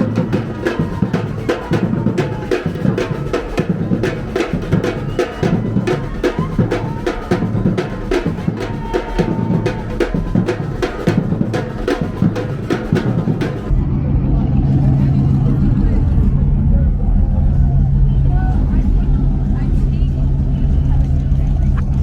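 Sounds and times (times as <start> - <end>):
fast kick and snare drum beat: 0.0 - 13.7.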